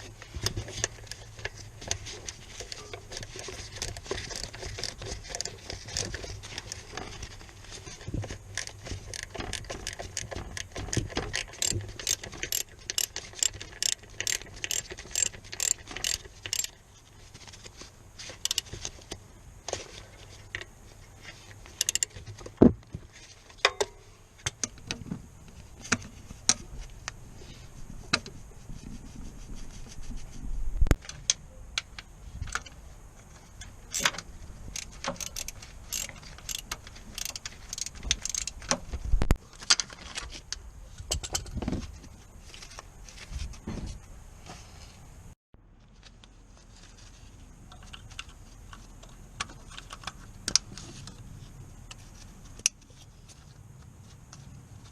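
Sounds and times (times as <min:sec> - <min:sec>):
tool clicking: 0:08.6 - 0:16.7, 0:33.9 - 0:38.8.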